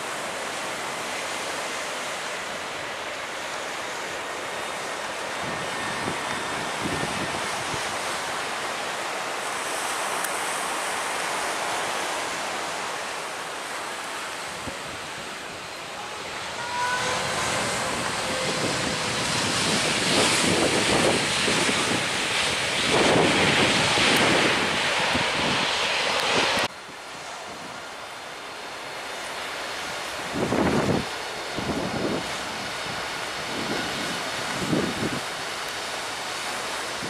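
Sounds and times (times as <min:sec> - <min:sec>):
surf breaking on beach: 0:00.0 - 0:27.8
wind buffeting microphone: 0:05.2 - 0:08.3, 0:14.4 - 0:26.7, 0:30.2 - 0:35.4.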